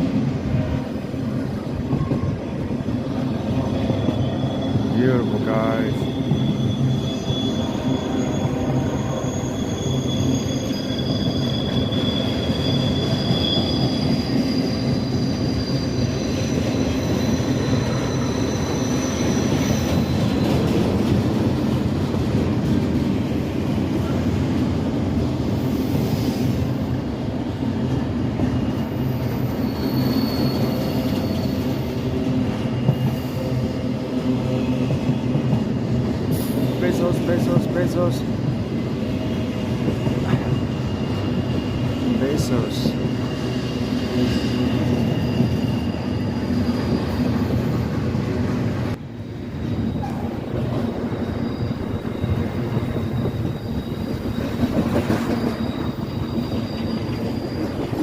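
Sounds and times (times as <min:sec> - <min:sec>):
train wheels rumbling on rail: 0:00.0 - 0:58.0
high thin wheel squeals: 0:03.7 - 0:20.7, 0:28.6 - 0:32.0, 0:39.9 - 0:47.9, 0:49.8 - 0:58.0.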